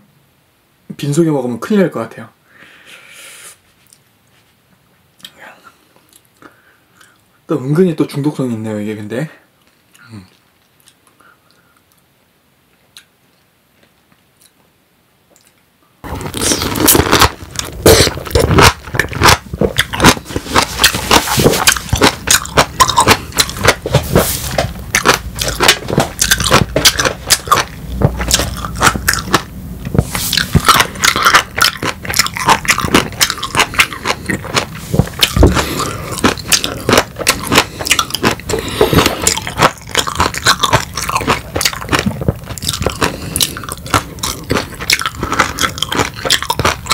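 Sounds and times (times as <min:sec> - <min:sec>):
chewing with mouth clicks: 0:09.6 - 0:12.0, 0:15.3 - 0:46.9.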